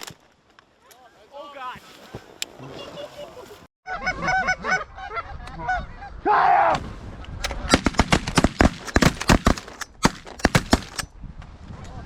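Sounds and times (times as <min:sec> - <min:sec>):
shotgun blasts: 0:07.4 - 0:11.1.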